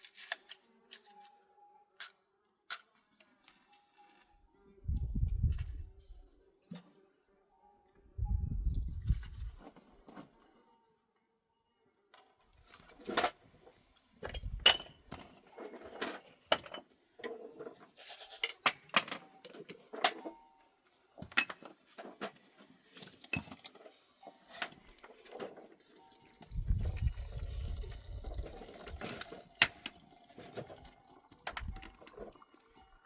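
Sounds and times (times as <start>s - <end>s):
hard objects clinking and knocking: 14.1s - 20.5s.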